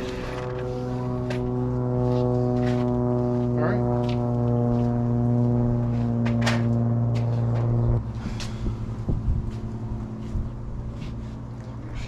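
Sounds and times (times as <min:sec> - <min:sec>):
buzzy electrical machine hum: 0:00.0 - 0:12.0.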